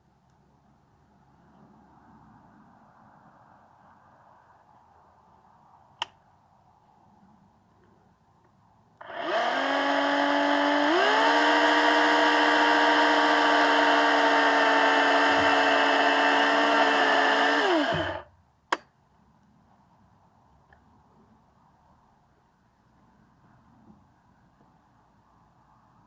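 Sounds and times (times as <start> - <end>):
electric saw motor whine: 9.0 - 18.3.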